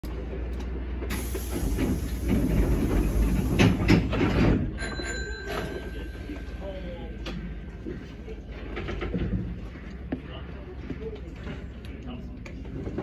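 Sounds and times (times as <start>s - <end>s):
low train rumble: 0.0s - 13.0s
knocks and clatter: 1.1s - 5.8s, 7.2s - 11.8s.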